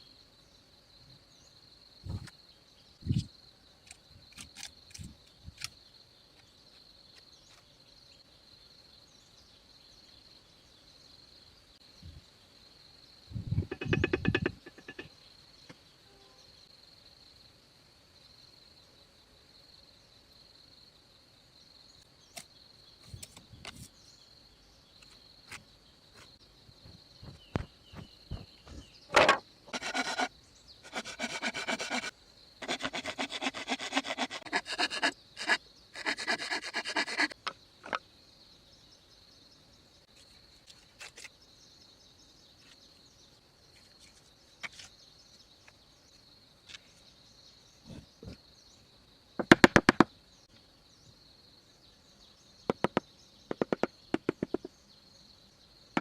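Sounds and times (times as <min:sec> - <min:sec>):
high insect drone: 0:00.0 - 0:56.0
knocks: 0:13.6 - 0:15.1
wood being sawn by hand: 0:29.7 - 0:37.4.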